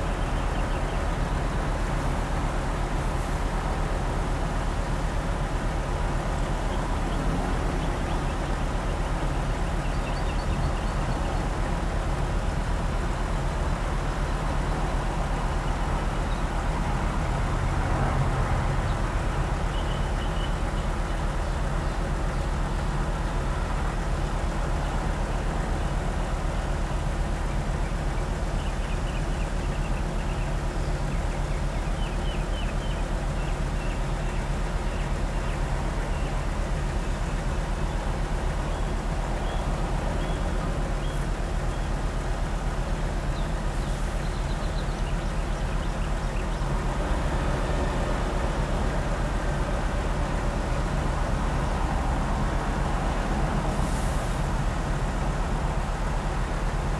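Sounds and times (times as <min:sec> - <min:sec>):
truck diesel engine running: 0:00.0 - 0:56.9.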